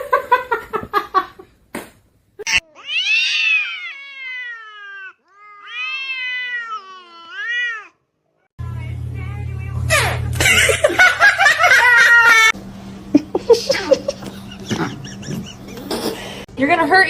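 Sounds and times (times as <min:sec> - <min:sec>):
cat meowing: 0:02.5 - 0:08.0.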